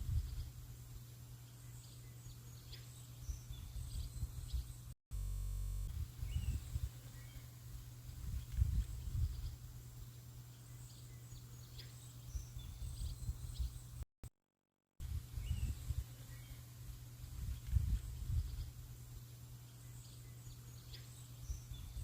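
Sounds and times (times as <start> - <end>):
birds chirping: 6.0 - 14.0.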